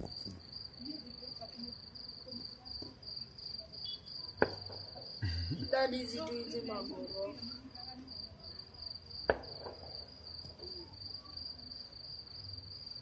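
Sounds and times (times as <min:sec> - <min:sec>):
crickets chirping: 0:00.0 - 0:13.0
distant firecracker crack: 0:04.4 - 0:05.8, 0:09.2 - 0:10.9.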